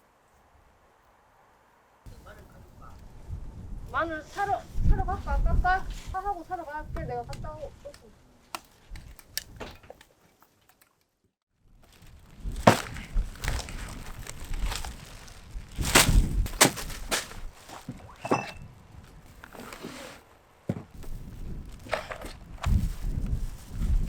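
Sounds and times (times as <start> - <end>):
irregular knocks and thuds: 20.7 - 21.2.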